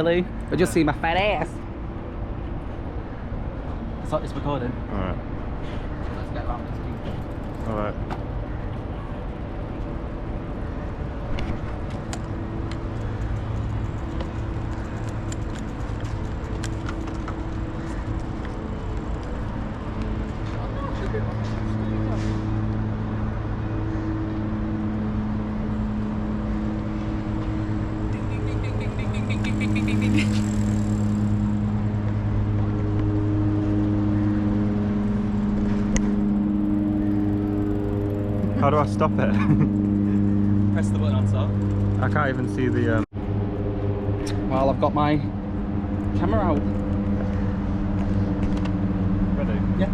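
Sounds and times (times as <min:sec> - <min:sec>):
road noise: 0:00.0 - 0:49.9
bicycle clicks and rattles: 0:06.7 - 0:08.2, 0:11.4 - 0:21.2
low hum: 0:06.8 - 0:49.9.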